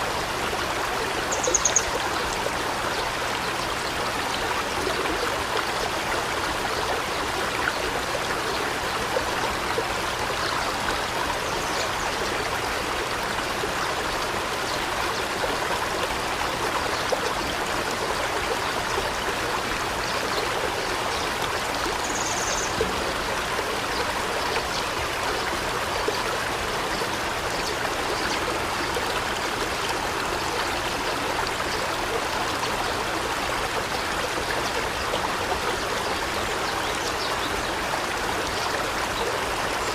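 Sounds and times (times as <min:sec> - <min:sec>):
water rushing and trickling: 0:00.0 - 0:39.9
high bird chirp: 0:01.3 - 0:01.9.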